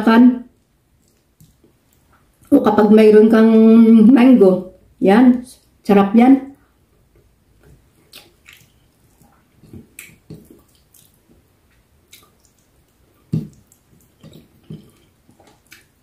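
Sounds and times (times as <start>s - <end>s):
wet mouth clicks and lip smacks: 1.0s - 2.5s, 8.0s - 16.0s.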